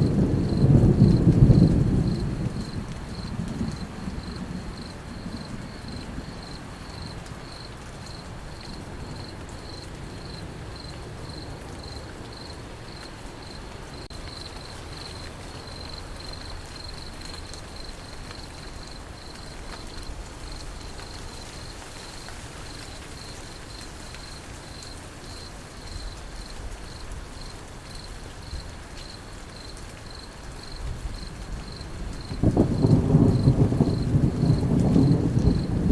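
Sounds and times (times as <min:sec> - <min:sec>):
low thunder rumble: 0:00.0 - 0:07.5, 0:30.8 - 0:35.9
rain hiss: 0:00.0 - 0:35.9
cricket chirping: 0:00.4 - 0:35.7.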